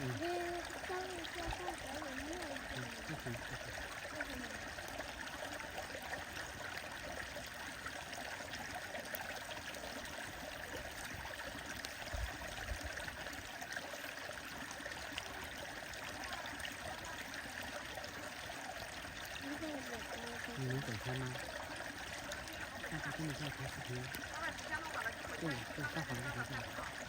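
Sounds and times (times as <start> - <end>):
stream water flowing: 0.0 - 27.0.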